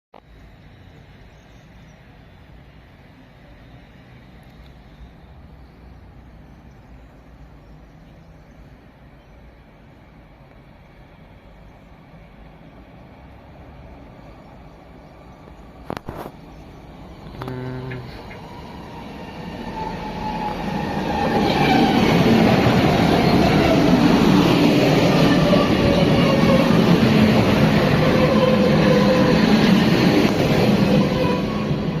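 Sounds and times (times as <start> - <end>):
train passing: 0.2 - 32.0
short low tone: 17.3 - 18.3.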